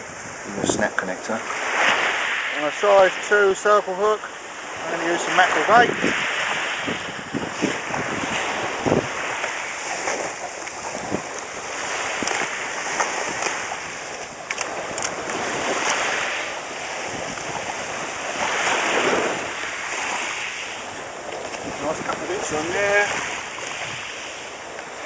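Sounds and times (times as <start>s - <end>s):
sea waves washing ashore: 0.0s - 25.0s
wind on microphone: 0.0s - 25.0s
faint clicks: 14.2s - 16.0s.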